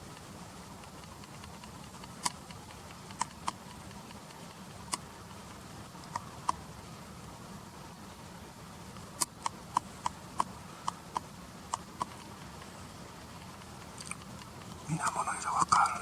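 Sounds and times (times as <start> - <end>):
outdoor background noise: 0.0 - 16.0
sharp clicks: 0.1 - 5.1, 13.4 - 14.8.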